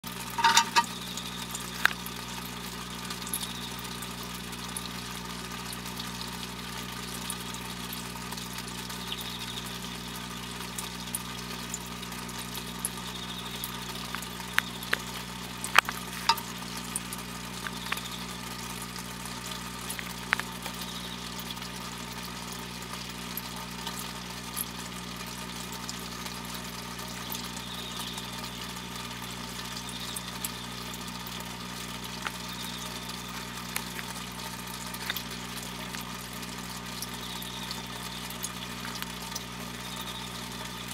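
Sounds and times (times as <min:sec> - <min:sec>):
electrical hum with hiss: 0:00.0 - 0:40.9
sharp clicks: 0:13.4 - 0:18.4.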